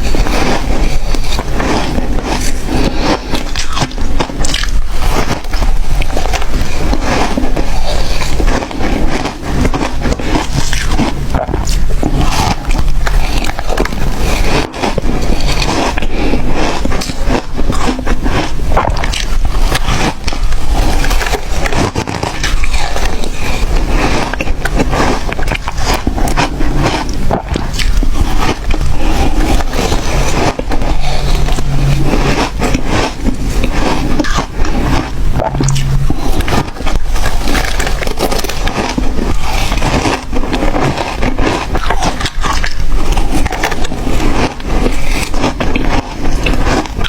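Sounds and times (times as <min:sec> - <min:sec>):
ice being chewed: 0:00.0 - 0:47.0.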